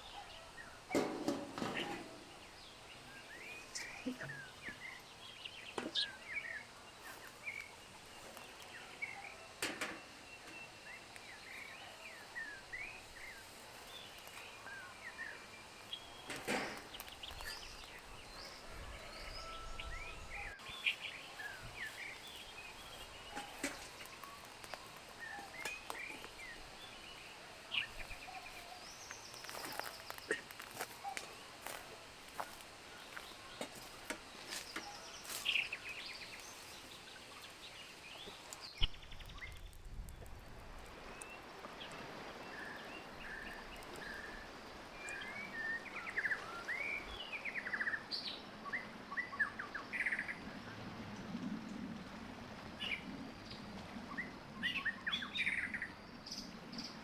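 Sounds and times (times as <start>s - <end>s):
small birds chirping: 0.0s - 50.4s.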